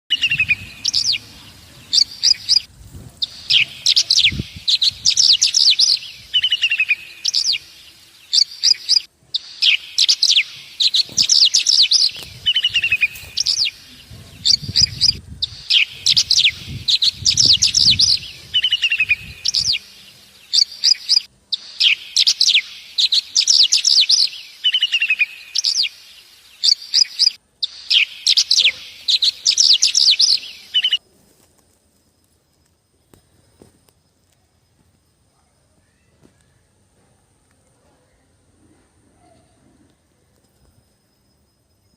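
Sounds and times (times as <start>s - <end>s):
small birds chirping and trilling: 0.1s - 31.0s.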